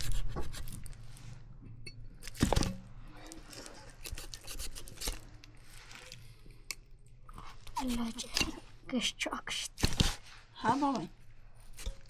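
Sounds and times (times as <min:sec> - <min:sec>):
crunching and scraping: 0:02.2 - 0:06.8.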